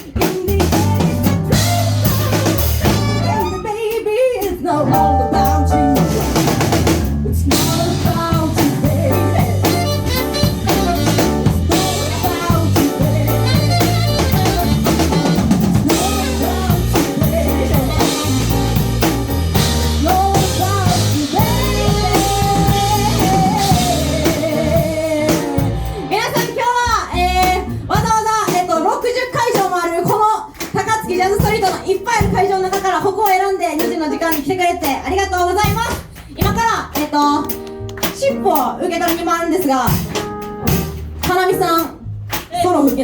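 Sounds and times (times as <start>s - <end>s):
drum kit rimshots: 0.0s - 43.0s
jazz-funk band playing: 0.0s - 43.0s
bass line: 0.3s - 3.9s, 4.7s - 28.2s, 34.0s - 43.0s.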